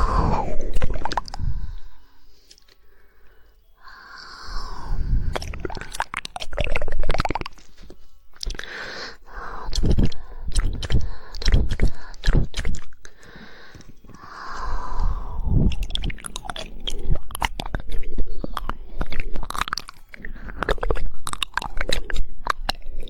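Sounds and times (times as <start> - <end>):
moist hissing mouth noise: 3.9 - 7.6
wet tongue clicks: 4.0 - 7.7, 8.3 - 8.8, 9.5 - 13.2, 13.8 - 23.0.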